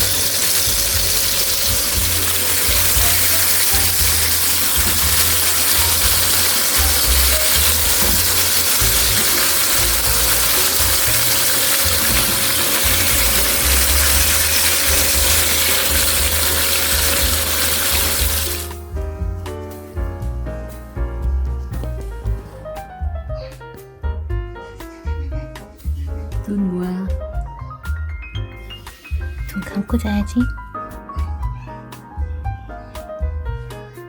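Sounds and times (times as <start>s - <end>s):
loud steady hiss: 0.0s - 18.9s
music with thudding beat: 0.0s - 34.0s
piano music: 0.0s - 34.0s.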